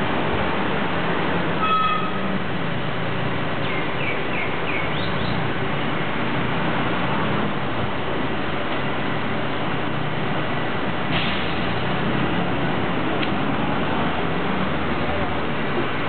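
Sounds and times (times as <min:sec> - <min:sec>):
bird chirps: 0:03.6 - 0:05.4.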